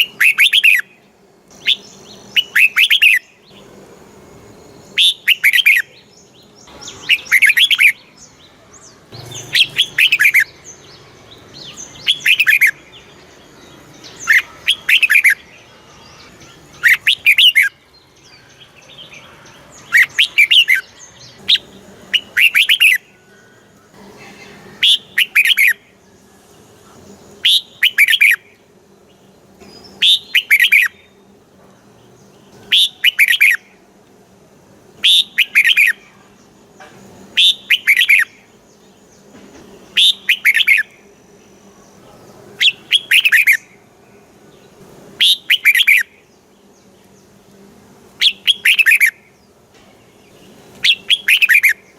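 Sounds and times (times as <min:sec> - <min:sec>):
bulbul bubbling song: 0:21.4 - 0:23.1, 0:30.0 - 0:31.1.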